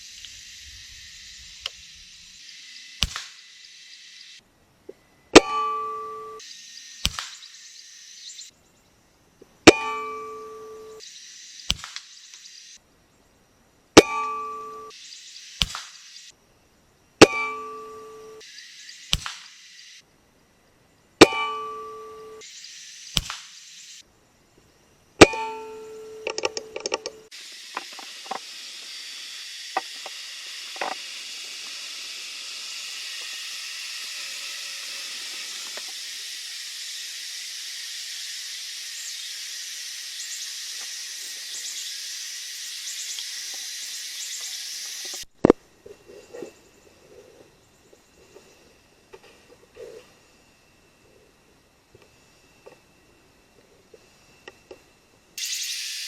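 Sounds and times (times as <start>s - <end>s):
steady high hiss: 0.0s - 56.0s
small click: 1.6s - 1.8s, 3.0s - 3.4s, 7.0s - 7.4s, 11.7s - 12.5s, 15.6s - 16.0s, 19.1s - 19.6s, 23.2s - 23.5s
loud ringing strikes: 5.4s - 6.4s, 9.7s - 11.0s, 14.0s - 14.9s, 17.2s - 18.4s, 21.2s - 22.4s, 25.2s - 26.3s.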